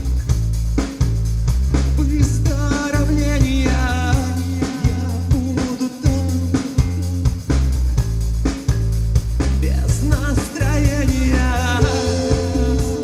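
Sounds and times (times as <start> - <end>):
drum beat: 0.0 - 13.0
rock band playing: 1.7 - 13.0
person singing with vibrato: 9.7 - 13.0.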